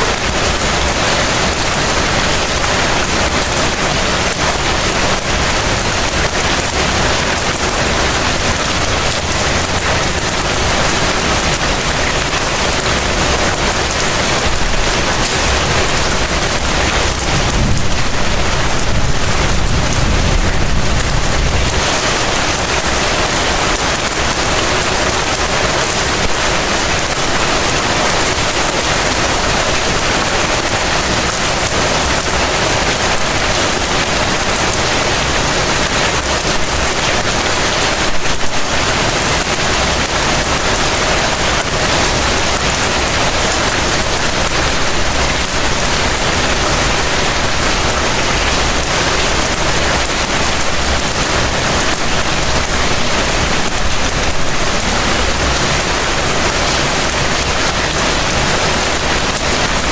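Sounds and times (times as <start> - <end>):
heavy rain falling: 0.0 - 59.9
low rumble: 17.1 - 21.8.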